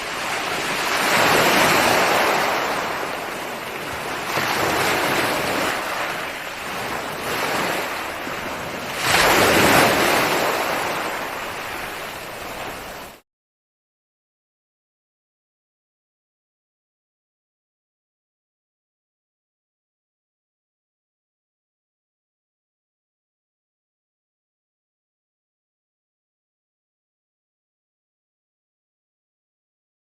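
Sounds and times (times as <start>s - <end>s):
ocean waves breaking on shore: 0.0s - 13.2s.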